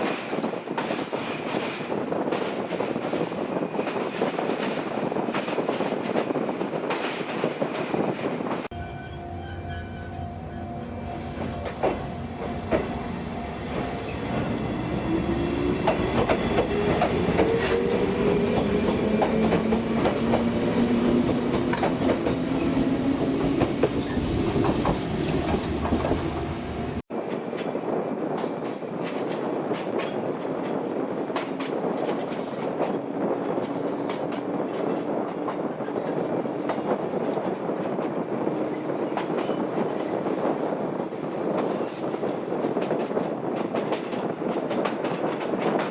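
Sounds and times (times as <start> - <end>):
train running on rails: 0.0 - 45.9
wheels clicking over rail joints: 18.5 - 26.3.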